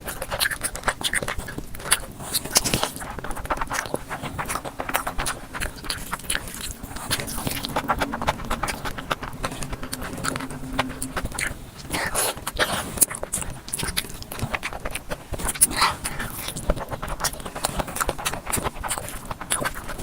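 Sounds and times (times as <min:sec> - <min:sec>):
faint steady hum: 0:05.8 - 0:12.1.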